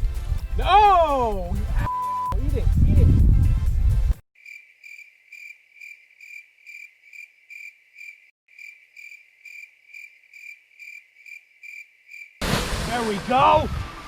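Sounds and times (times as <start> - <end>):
cricket chirping: 4.4 - 12.4.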